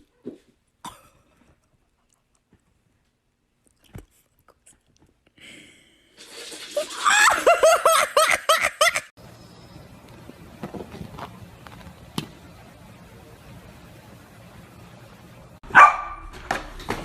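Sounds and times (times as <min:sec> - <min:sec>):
high-pitched laughter: 0:06.8 - 0:09.1.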